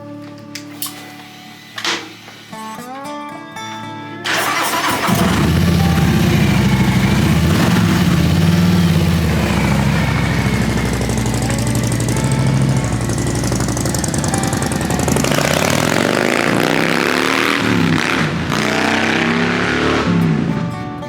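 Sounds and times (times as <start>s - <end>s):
motorcycle engine accelerating: 4.3s - 20.8s.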